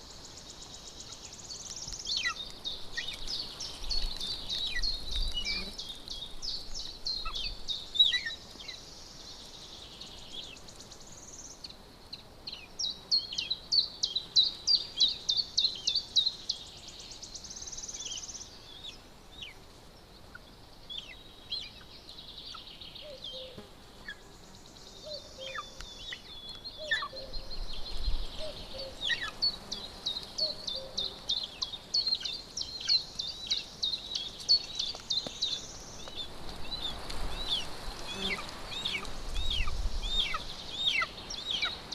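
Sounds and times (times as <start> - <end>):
birds chirping and trilling: 0.0 - 11.8, 20.2 - 41.9
outdoor background hiss: 0.0 - 41.9.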